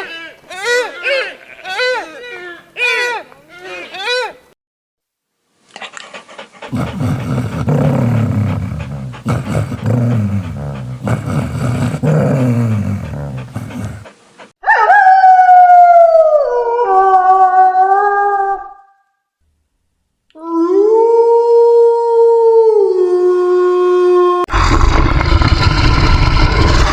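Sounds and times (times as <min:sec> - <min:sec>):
dog grumbling: 0:05.8 - 0:14.2
dog howling: 0:12.0 - 0:18.8.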